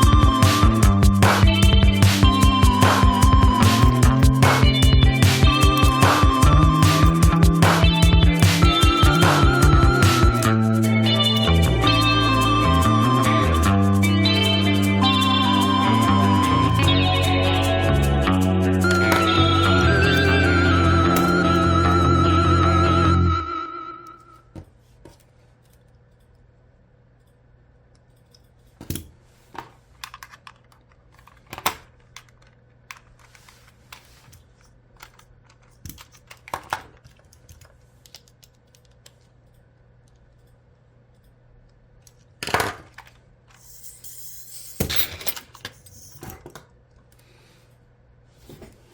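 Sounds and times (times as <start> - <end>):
small hard parts clicking and clattering: 30.0 - 33.4, 34.3 - 40.2.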